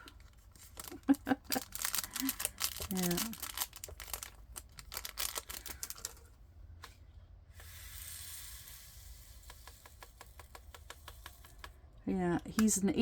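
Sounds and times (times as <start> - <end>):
plastic drills pouring rattle: 0.6 - 6.3.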